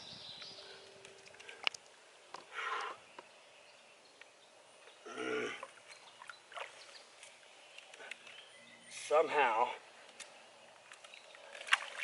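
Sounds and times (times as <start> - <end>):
faint clicks: 0.4 - 3.3, 7.2 - 8.4.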